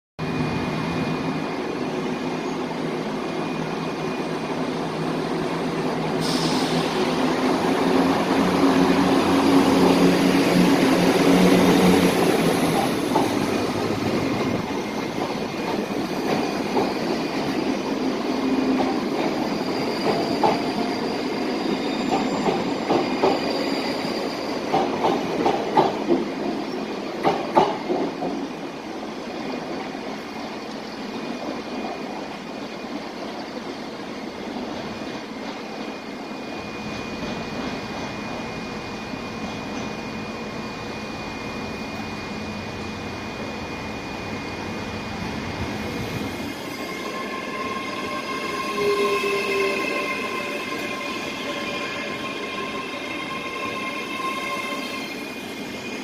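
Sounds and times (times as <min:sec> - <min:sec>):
train engine hum: 0:00.2 - 0:56.0.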